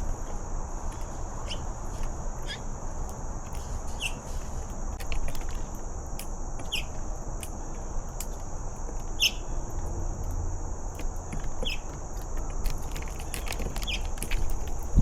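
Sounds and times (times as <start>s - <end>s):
insect drone: 0.0s - 15.0s
bird chirping: 1.4s - 1.7s, 2.4s - 2.7s, 3.9s - 4.4s, 6.6s - 7.0s, 9.1s - 9.7s, 11.3s - 12.0s, 13.2s - 14.6s.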